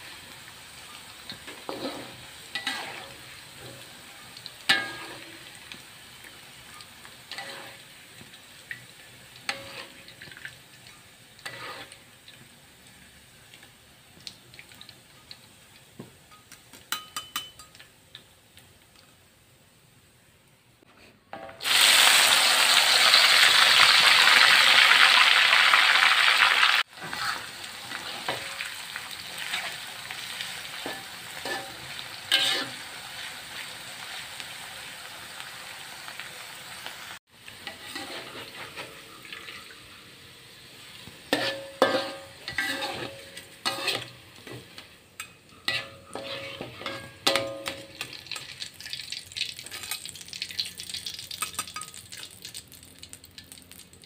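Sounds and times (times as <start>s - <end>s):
bean sprouts sizzling in oil: 0.0s - 20.3s, 21.6s - 54.0s
metal utensils scraping a wok: 1.3s - 4.0s, 4.6s - 5.6s, 7.3s - 7.9s, 9.5s - 10.4s, 11.4s - 12.0s, 26.9s - 28.7s, 29.4s - 33.3s, 37.6s - 39.2s, 41.3s - 48.5s, 49.6s - 50.1s.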